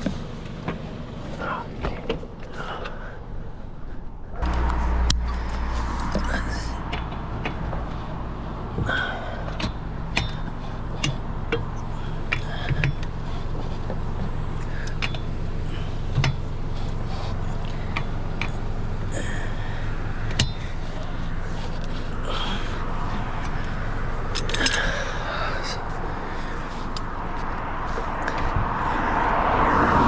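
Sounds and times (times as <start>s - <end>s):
low vehicle hum: 0.0s - 30.0s
sharp clicks and knocks: 4.4s - 8.1s, 8.8s - 15.3s, 16.1s - 16.5s.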